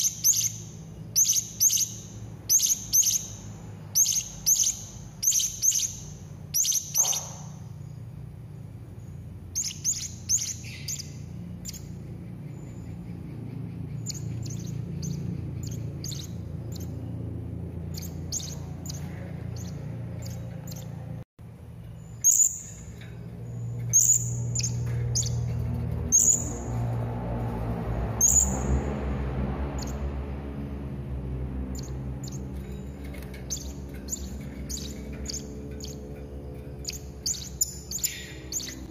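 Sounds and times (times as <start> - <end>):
parrot chirping: 0.0 - 8.0, 9.5 - 21.0, 23.9 - 25.5, 26.1 - 26.6, 33.4 - 38.9
steady low hum: 0.0 - 38.9.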